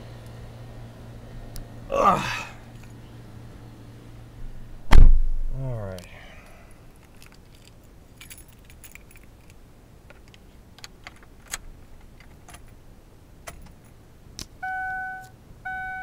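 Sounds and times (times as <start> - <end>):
car keys jangling: 6.8 - 12.8, 13.5 - 14.0
electronic warning chime: 14.6 - 16.0.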